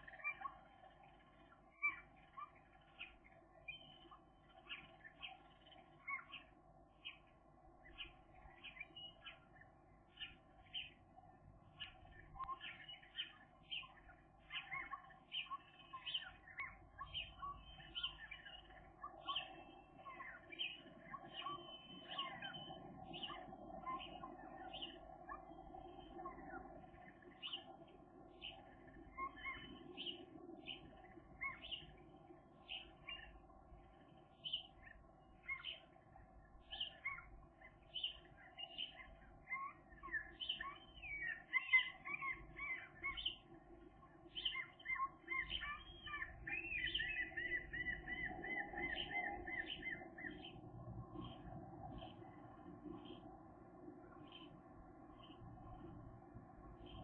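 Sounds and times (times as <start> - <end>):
bird trill: 0.0 - 1.0, 1.7 - 7.2, 11.7 - 27.8, 28.4 - 32.0, 34.4 - 35.9, 36.6 - 43.5, 44.3 - 52.4
birds chirping: 0.0 - 57.0
steady low hum: 42.1 - 57.0.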